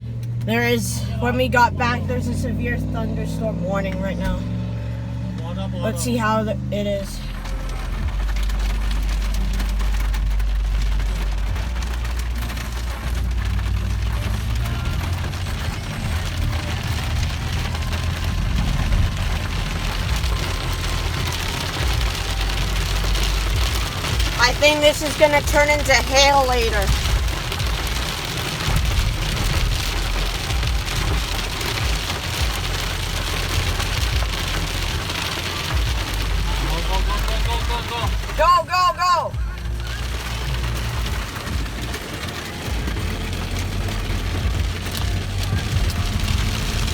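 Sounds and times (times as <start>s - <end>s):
low rumble: 0.0s - 38.4s, 39.3s - 46.9s
heavy rain pouring: 0.0s - 46.9s
low thunder rumble: 13.0s - 32.9s.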